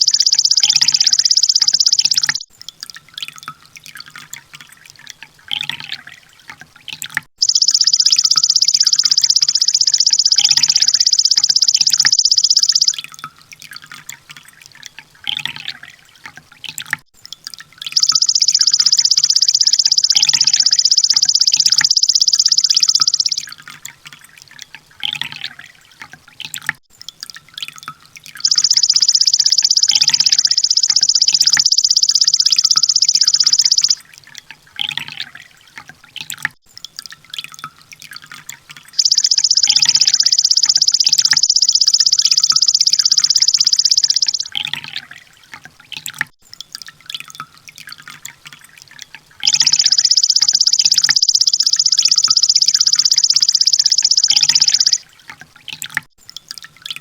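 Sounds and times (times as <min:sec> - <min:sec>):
rapid high-pitched bird trill: 0:00.0 - 0:02.5, 0:07.4 - 0:13.0, 0:18.0 - 0:23.5, 0:28.4 - 0:34.0, 0:39.0 - 0:44.7, 0:49.4 - 0:55.0
soft bird chirps: 0:00.0 - 0:02.5, 0:07.4 - 0:13.0, 0:18.0 - 0:23.6, 0:28.4 - 0:34.0, 0:39.0 - 0:45.0, 0:49.4 - 0:55.0.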